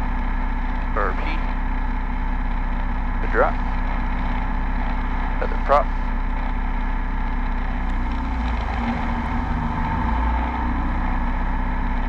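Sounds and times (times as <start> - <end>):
piston aircraft engine running: 0.0 - 12.0.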